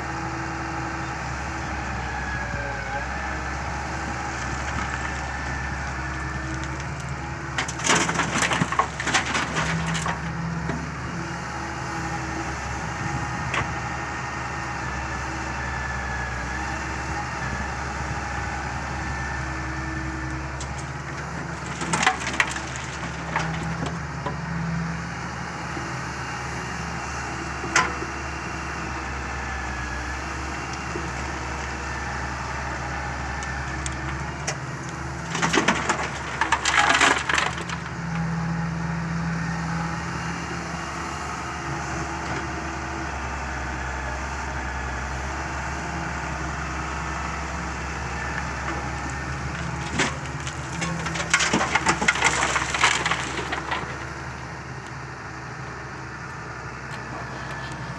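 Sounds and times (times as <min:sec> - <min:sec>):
excavator running: 0:00.0 - 0:57.9
gravel crunching and clattering: 0:03.8 - 0:10.8, 0:20.0 - 0:24.4, 0:30.7 - 0:38.3, 0:47.8 - 0:55.0, 0:56.9 - 0:57.9.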